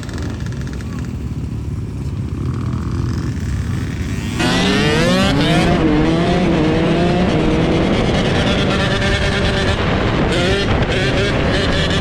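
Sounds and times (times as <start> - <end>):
dirt bike engine revving: 2.8 - 12.0.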